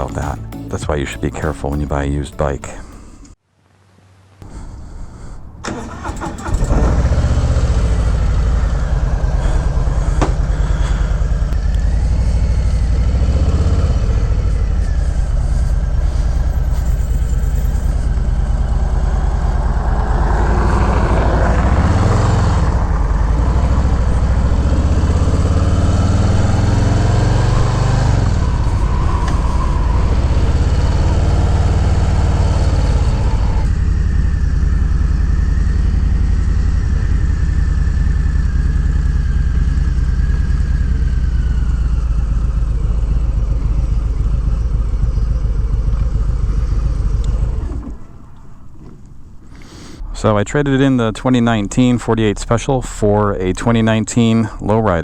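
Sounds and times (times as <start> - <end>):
motorcycle engine revving: 5.6 - 48.8.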